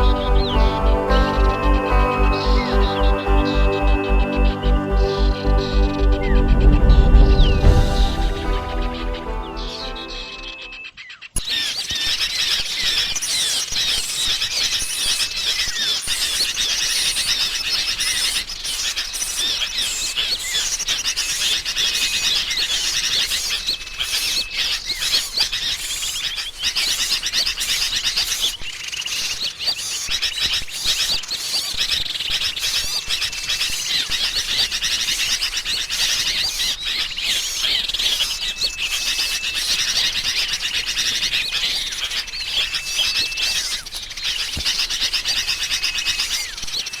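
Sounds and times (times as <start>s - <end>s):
short level whistle note: 0.0s - 10.9s.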